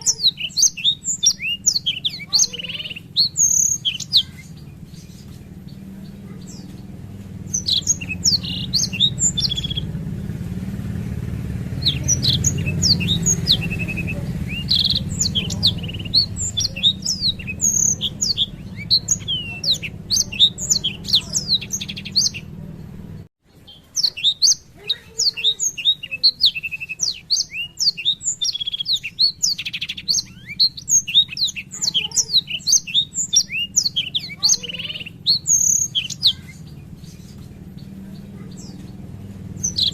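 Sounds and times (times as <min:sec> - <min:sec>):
steady low hum: 0:00.0 - 0:23.3
bird singing rapid chirps: 0:00.0 - 0:39.9.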